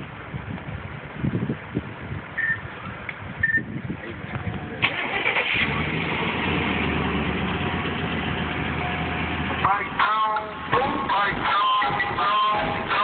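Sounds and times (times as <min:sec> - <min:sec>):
short beeps: 0:02.4 - 0:02.6, 0:03.4 - 0:03.7
car engine starting and idling: 0:04.2 - 0:13.0.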